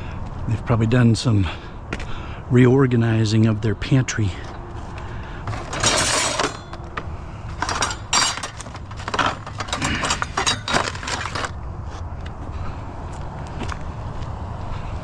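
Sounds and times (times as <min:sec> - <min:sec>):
metal and glass scrap clattering: 0:05.5 - 0:06.8, 0:07.6 - 0:11.5.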